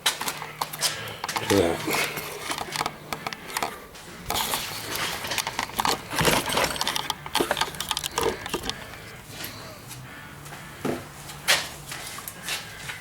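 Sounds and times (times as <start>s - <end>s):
parts clicking and rattling: 0.0s - 9.5s.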